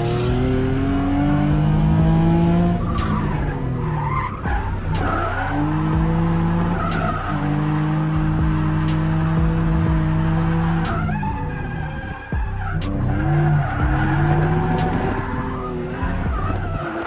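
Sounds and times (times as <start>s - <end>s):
car engine revving: 0.0s - 17.0s
tires squealing: 0.0s - 17.0s.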